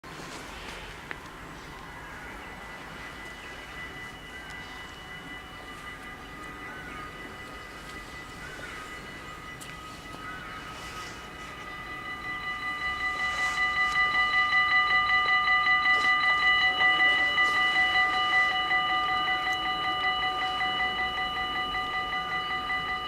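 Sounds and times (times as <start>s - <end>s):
level crossing bells ringing: 1.3s - 23.0s.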